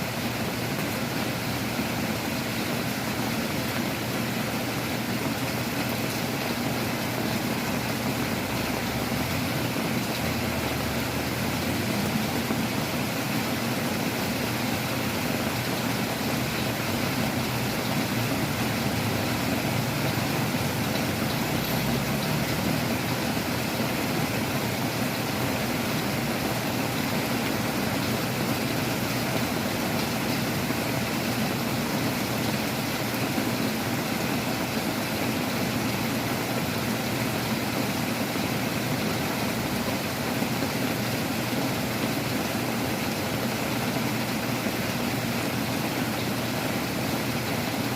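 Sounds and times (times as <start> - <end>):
heavy rain: 0.0 - 47.9.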